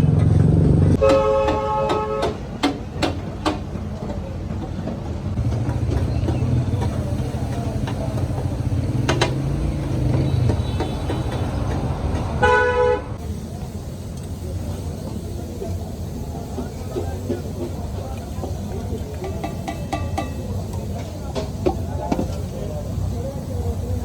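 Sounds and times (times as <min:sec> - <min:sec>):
vehicle engine rumbling: 0:00.0 - 0:24.0
vehicle horn honk: 0:01.0 - 0:02.5, 0:09.8 - 0:13.2.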